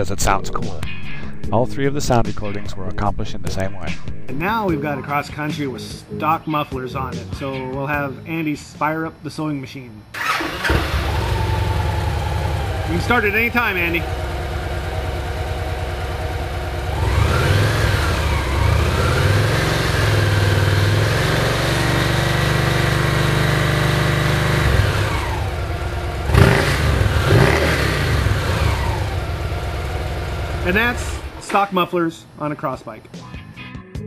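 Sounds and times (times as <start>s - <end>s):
motorcycle engine idling and revving: 10.2s - 31.5s.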